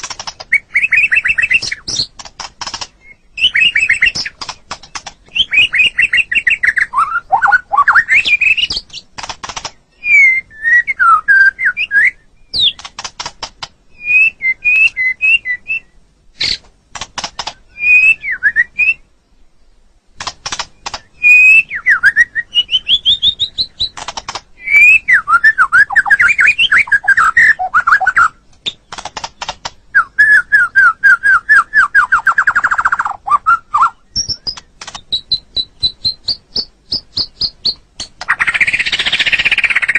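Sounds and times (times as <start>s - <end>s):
bird rapid clicking notes: 0.0s - 9.8s, 12.5s - 13.8s, 16.5s - 17.7s, 20.2s - 21.6s, 22.7s - 24.9s, 25.8s - 29.9s, 32.0s - 39.9s
bird singing whistled song: 0.5s - 2.1s, 2.8s - 9.1s, 9.9s - 12.9s, 13.9s - 16.6s, 17.5s - 19.1s, 20.8s - 24.0s, 24.6s - 28.8s, 29.9s - 39.9s.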